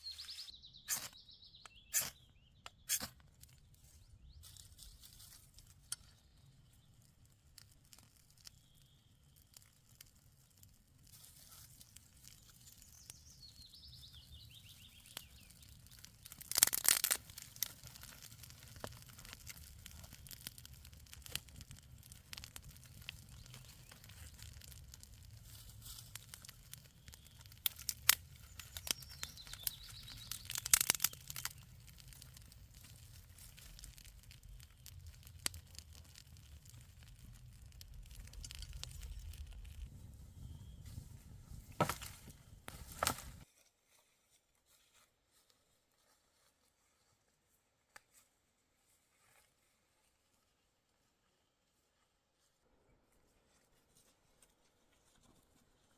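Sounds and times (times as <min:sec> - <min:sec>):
bird chirps: 0:00.0 - 0:03.0, 0:28.4 - 0:31.4
brittle material crackling: 0:04.5 - 0:39.9
crunching and tearing: 0:14.4 - 0:39.9.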